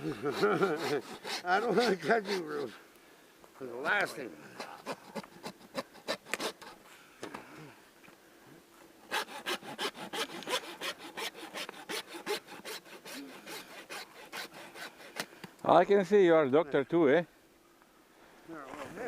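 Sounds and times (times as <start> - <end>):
hand saw cutting carcass: 0.0 - 2.8, 4.0 - 6.8, 9.1 - 15.3.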